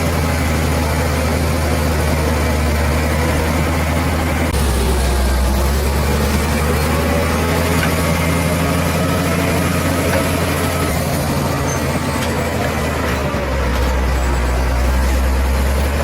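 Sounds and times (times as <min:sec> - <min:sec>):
bulldozer diesel engine humming: 0:00.0 - 0:16.0.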